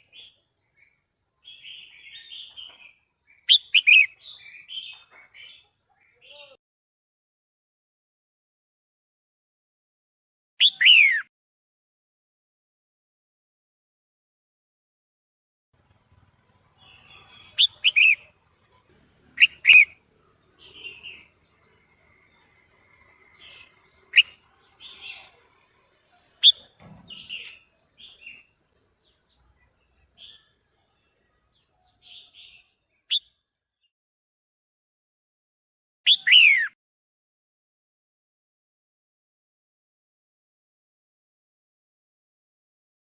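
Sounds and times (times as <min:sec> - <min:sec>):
bird chirping calls: 0:00.0 - 0:06.6, 0:10.6 - 0:11.3, 0:15.8 - 0:33.4, 0:36.1 - 0:36.8.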